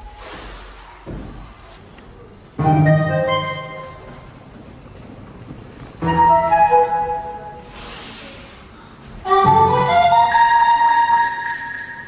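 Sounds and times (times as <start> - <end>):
orchestral music with flute melody: 2.6 - 4.1, 6.0 - 7.6, 9.2 - 12.0.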